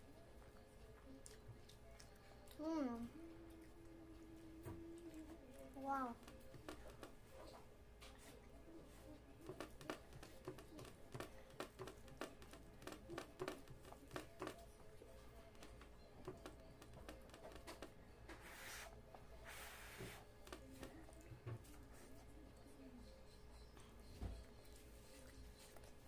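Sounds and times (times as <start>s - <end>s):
chewing sounds: 0.2s - 7.1s.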